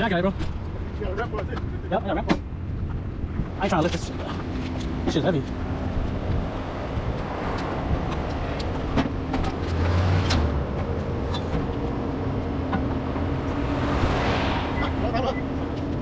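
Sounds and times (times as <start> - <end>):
vehicle humming: 0.4 - 16.0
car passing with tyre noise: 6.4 - 16.0.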